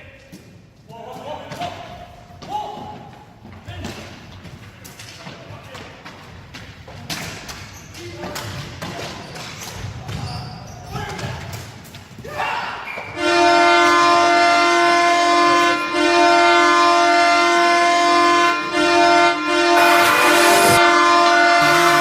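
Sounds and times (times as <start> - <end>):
goal horn blaring: 13.2 - 22.0.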